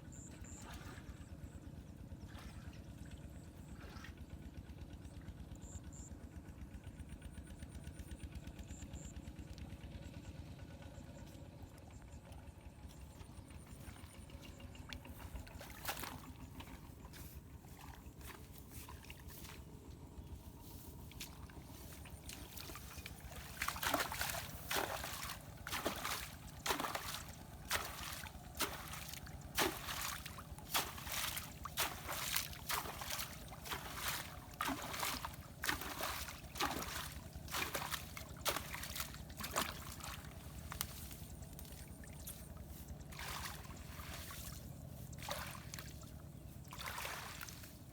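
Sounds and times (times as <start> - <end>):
water splashing and sloshing: 0.4 - 5.0, 12.2 - 47.9
water trickling: 20.7 - 47.8.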